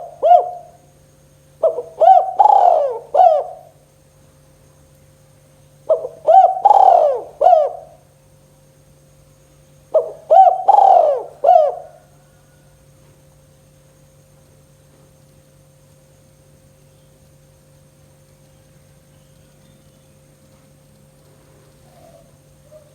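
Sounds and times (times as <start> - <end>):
dove cooing: 0.0 - 0.8, 1.6 - 3.8, 5.9 - 8.1, 9.9 - 12.6, 21.7 - 22.9
faint steady hum: 0.0 - 22.9.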